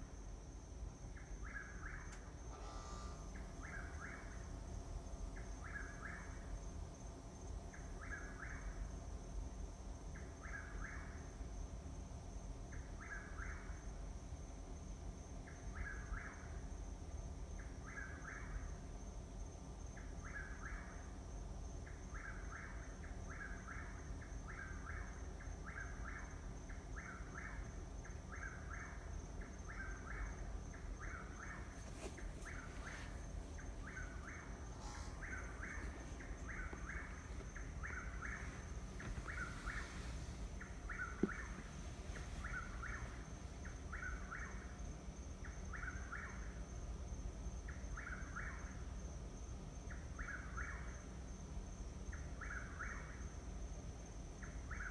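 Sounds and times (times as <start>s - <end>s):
bird calling: 1.5s - 4.4s, 29.7s - 44.7s.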